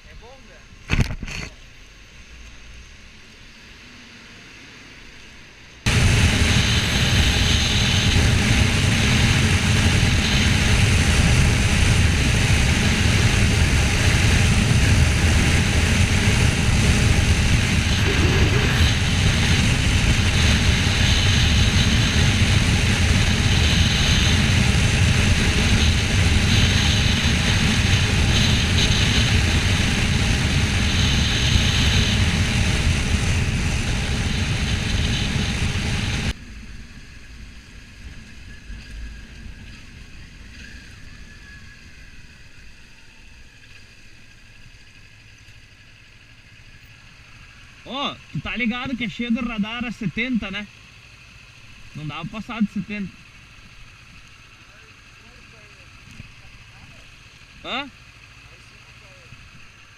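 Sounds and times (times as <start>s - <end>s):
low hum: 0.0s - 59.9s
wind rush over microphone: 5.9s - 37.2s
motorcycle engine running: 5.9s - 59.9s.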